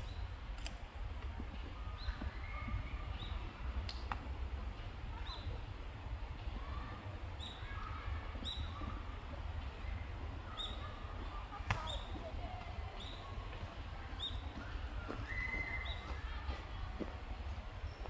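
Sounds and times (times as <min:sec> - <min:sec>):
soft bird twittering: 0:01.8 - 0:03.6, 0:06.8 - 0:09.2, 0:09.8 - 0:16.4
high bird chirps: 0:14.2 - 0:16.2.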